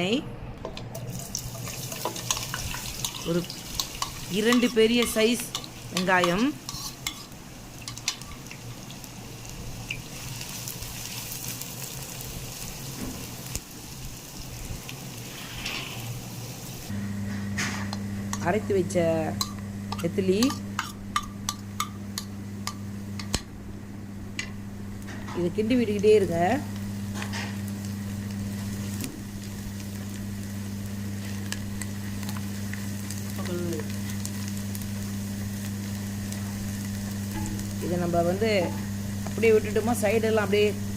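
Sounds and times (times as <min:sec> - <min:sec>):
onions sizzling in hot oil: 0:01.0 - 0:16.9, 0:24.6 - 0:40.9
spatula scraping a pan: 0:03.8 - 0:07.4
steady low hum: 0:16.1 - 0:40.9.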